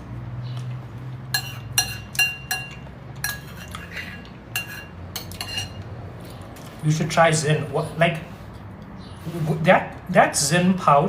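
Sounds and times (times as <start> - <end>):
spoon clinking against bowl: 1.3 - 5.9.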